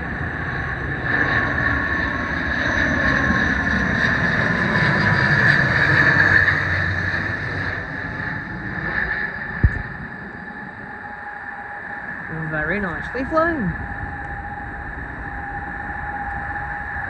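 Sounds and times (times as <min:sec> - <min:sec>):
turboprop airliner engines droning: 0:00.0 - 0:17.0.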